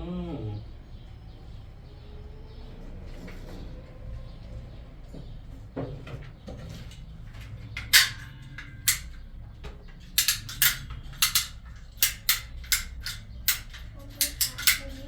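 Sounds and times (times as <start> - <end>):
hard objects knocking together: 5.8 - 15.0.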